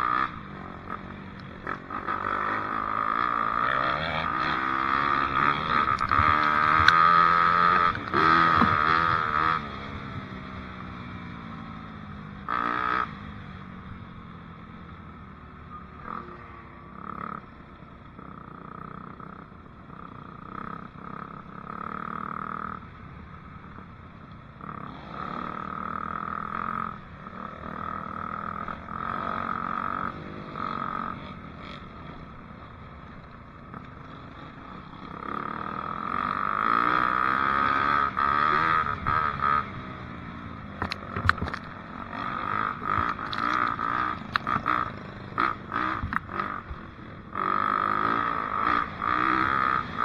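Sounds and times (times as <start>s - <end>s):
dirt bike engine revving: 0.0s - 10.1s, 35.2s - 40.0s, 40.8s - 50.0s.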